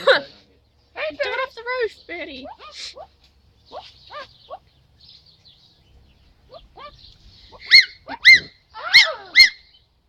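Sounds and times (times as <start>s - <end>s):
parrot squawks: 2.4s - 3.1s, 3.7s - 4.6s, 6.5s - 9.7s
parrot chirps: 3.7s - 4.6s, 6.5s - 9.8s.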